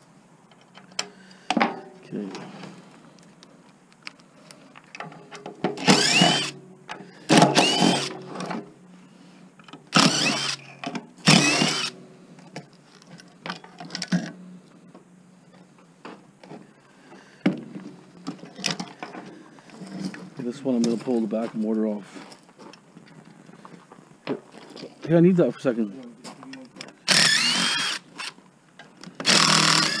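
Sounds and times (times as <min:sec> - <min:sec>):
power drill whining: 0:05.8 - 0:06.6, 0:07.2 - 0:08.2, 0:09.9 - 0:12.0, 0:27.0 - 0:28.4, 0:29.2 - 0:30.0.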